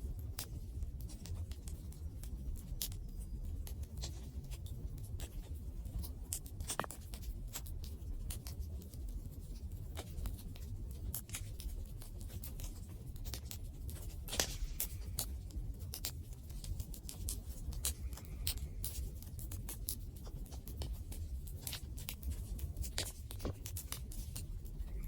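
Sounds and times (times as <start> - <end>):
wood fire crackling: 10.8 - 25.0.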